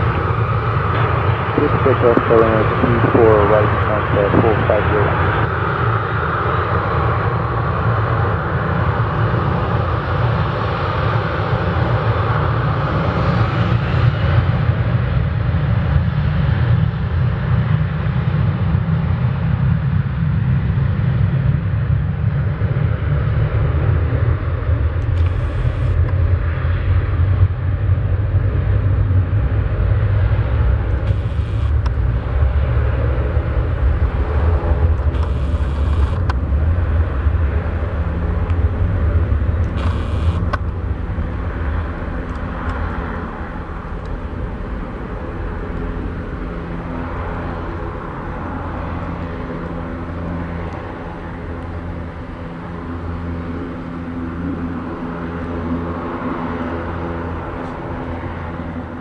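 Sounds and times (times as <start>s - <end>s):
jet engine whine: 0.0s - 59.0s
jet engines rumbling: 0.0s - 59.0s.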